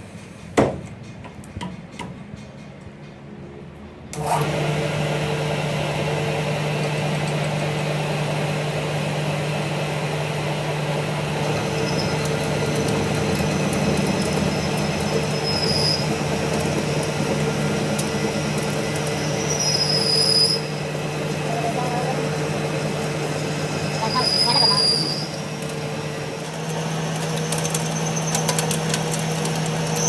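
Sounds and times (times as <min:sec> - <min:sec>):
shop machine humming: 0:04.1 - 0:30.0
metal grinding: 0:11.4 - 0:30.0
high squeals: 0:11.5 - 0:17.1, 0:18.8 - 0:21.0, 0:23.8 - 0:25.7, 0:27.0 - 0:29.0.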